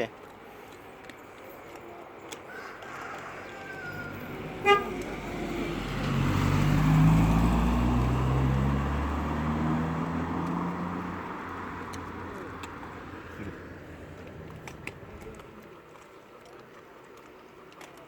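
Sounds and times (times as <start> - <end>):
car driving past: 2.9 - 14.9.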